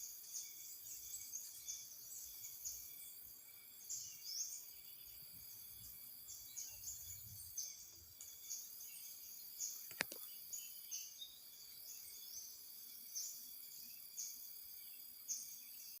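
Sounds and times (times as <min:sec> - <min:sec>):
insects droning: 0:00.0 - 0:16.0
sharp click: 0:09.8 - 0:10.2.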